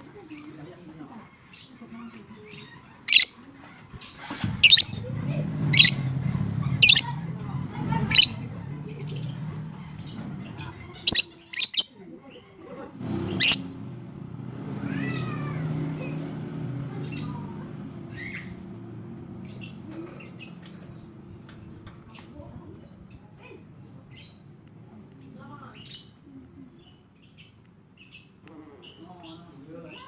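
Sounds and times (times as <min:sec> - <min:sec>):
low background murmur: 0:00.0 - 0:30.0
lovebirds screeching: 0:01.2 - 0:05.0, 0:05.6 - 0:07.2, 0:07.9 - 0:12.6, 0:13.2 - 0:13.7.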